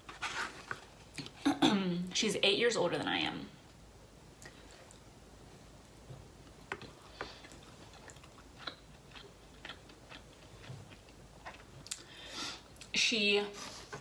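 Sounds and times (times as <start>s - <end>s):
person chewing: 6.7s - 12.9s.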